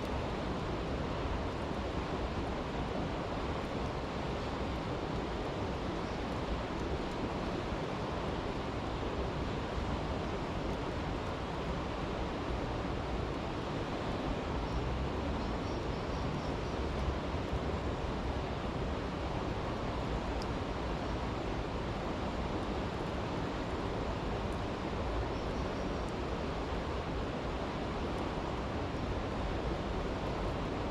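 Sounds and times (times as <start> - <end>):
brook water flowing: 0.0 - 30.9
campfire crackles: 3.5 - 7.7.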